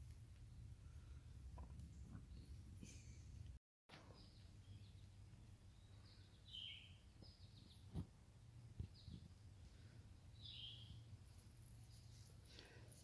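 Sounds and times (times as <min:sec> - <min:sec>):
faint bird chirps: 0:04.0 - 0:08.0, 0:08.9 - 0:11.1.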